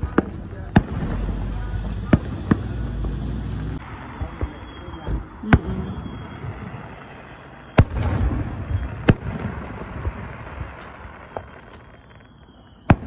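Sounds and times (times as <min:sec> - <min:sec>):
firework shells bursting: 0:00.0 - 0:03.8
faint firework pops: 0:07.8 - 0:13.0.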